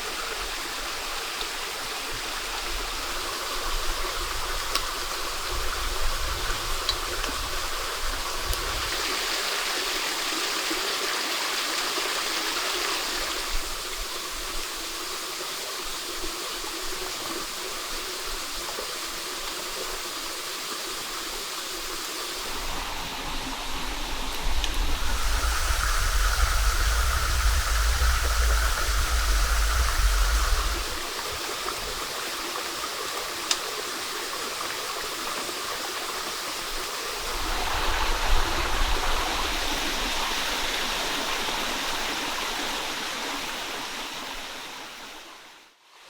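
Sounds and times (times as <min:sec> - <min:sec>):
stream rushing: 0:21.6 - 0:45.6.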